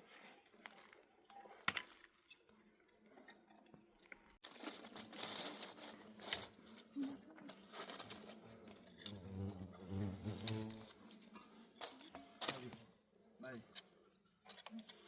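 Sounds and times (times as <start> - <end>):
crinkling handling noise: 0.1 - 9.2, 10.3 - 12.9
crackles: 0.2 - 9.3.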